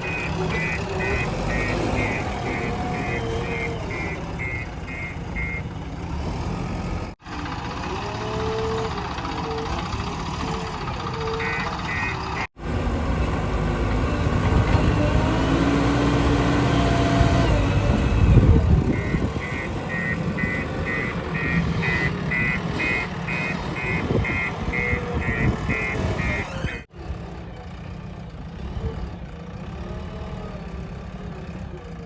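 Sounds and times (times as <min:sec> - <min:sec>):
reversing alarm beeping: 0:00.0 - 0:05.7, 0:18.9 - 0:26.8
diesel engines running: 0:00.0 - 0:32.0.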